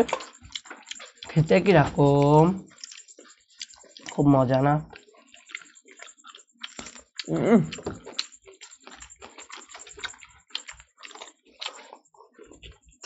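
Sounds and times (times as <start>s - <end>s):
wet chewing sounds: 0.0s - 13.0s
short vocal sound: 7.3s - 7.9s.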